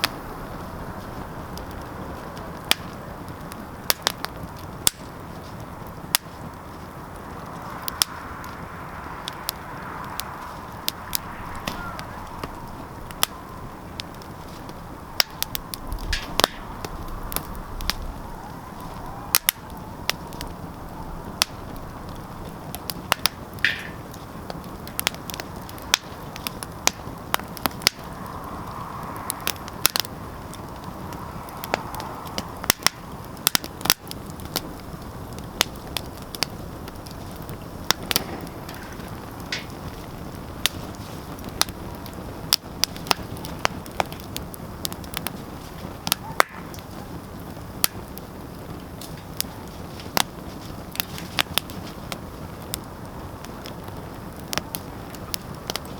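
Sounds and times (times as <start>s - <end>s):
low hiss of flame: 0.0s - 55.9s
wood fire crackling: 0.0s - 55.9s.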